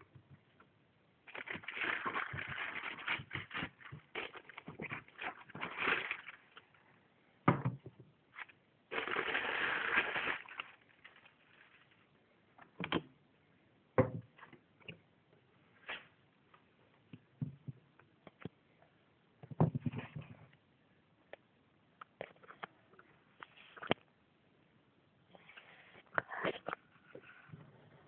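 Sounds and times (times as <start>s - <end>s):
paper rustling: 1.3s - 6.8s, 8.4s - 12.1s.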